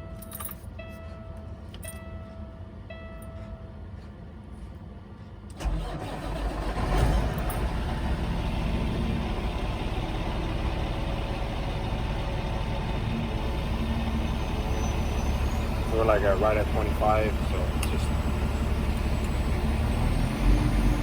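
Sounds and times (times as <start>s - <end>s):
diesel engine cranking and starting: 5.5s - 21.0s
diesel engine revving and idling: 5.6s - 21.0s.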